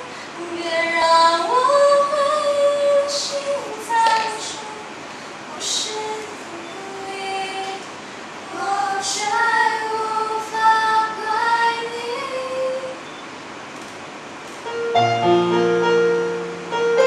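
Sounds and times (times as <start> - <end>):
woman singing unaccompanied: 0.0 - 13.1.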